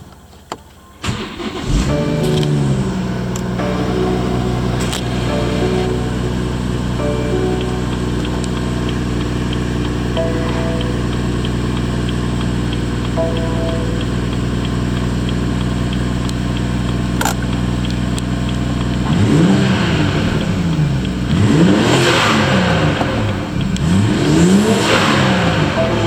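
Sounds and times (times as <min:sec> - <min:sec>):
car engine idling and revving: 0:01.1 - 0:05.3, 0:14.3 - 0:26.0.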